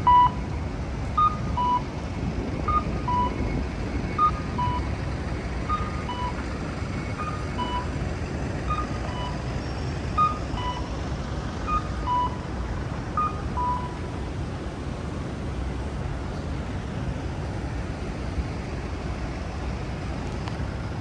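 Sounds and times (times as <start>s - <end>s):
city traffic rumble: 0.0s - 21.0s
crossing signal cuckoo call: 5.6s - 8.0s, 8.6s - 9.5s.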